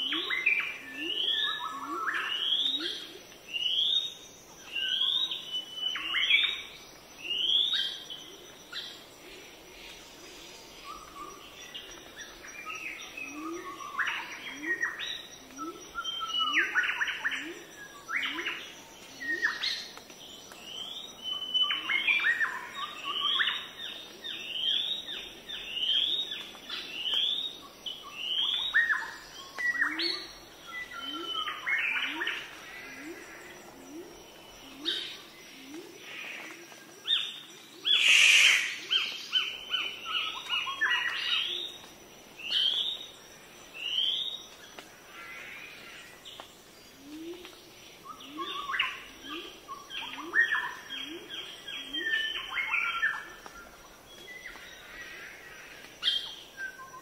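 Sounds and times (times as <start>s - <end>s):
birds whistling and chirping: 37.1s - 41.7s, 46.3s - 54.6s, 56.1s - 57.0s.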